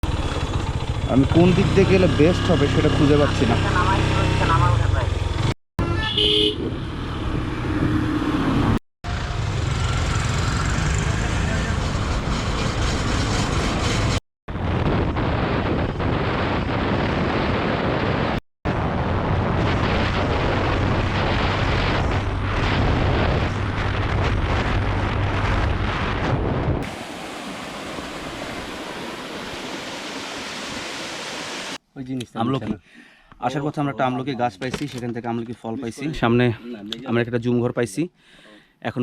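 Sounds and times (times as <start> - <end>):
wind buffeting microphone: 11.8 - 30.8.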